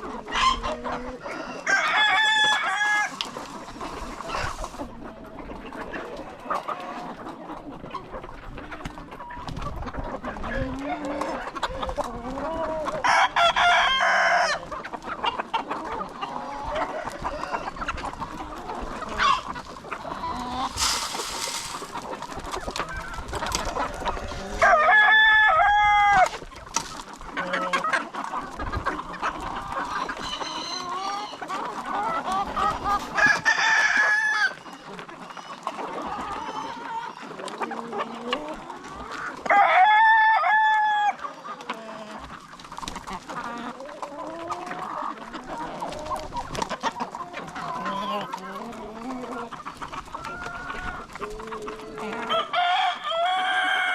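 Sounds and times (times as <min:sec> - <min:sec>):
chickens clucking: 0:00.0 - 0:53.9
rooster crowing: 0:01.3 - 0:03.2, 0:39.5 - 0:41.2, 0:52.2 - 0:53.9.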